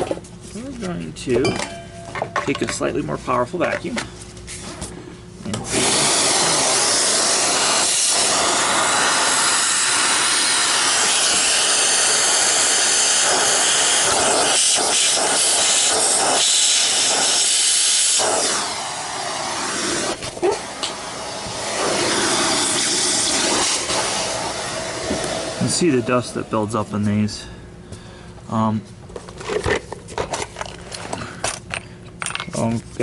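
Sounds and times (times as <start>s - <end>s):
vacuum cleaner running: 5.4s - 26.9s.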